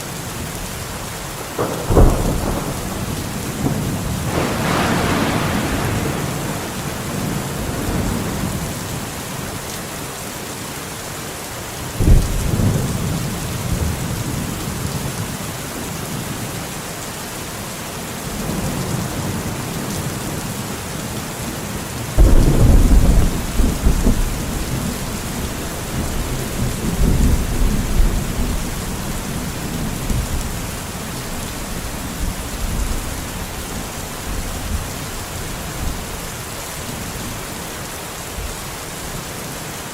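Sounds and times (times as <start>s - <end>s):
steady rain: 0.0s - 39.9s
thunderclaps and rumbling: 1.5s - 9.5s, 12.0s - 15.4s, 22.2s - 37.4s.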